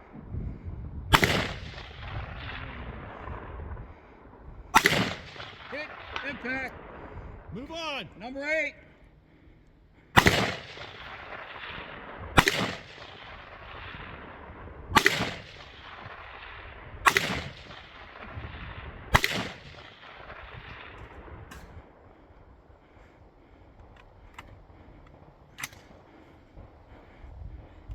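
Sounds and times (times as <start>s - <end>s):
rifle shots with echo: 1.1s - 4.1s, 4.7s - 8.0s, 10.0s - 22.3s.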